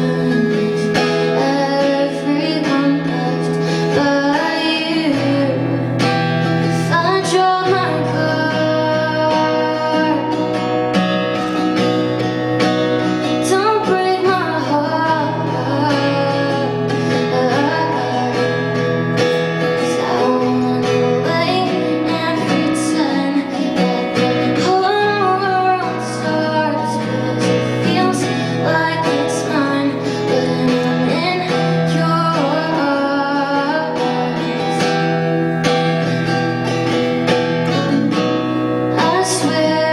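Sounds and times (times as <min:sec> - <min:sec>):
guitar accompaniment: 0:00.0 - 0:39.9
woman singing: 0:00.0 - 0:39.9.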